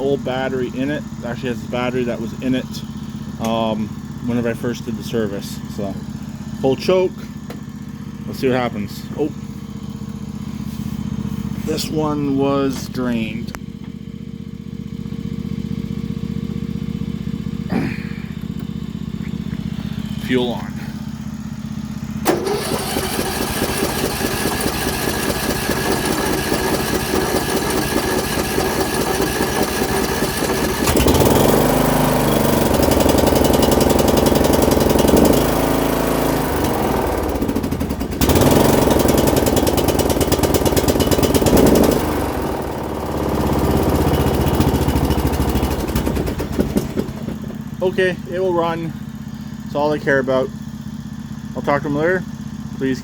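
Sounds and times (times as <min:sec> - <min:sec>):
mower engine running unevenly: 0:00.0 - 0:53.0
electric starter cranking: 0:22.1 - 0:47.6.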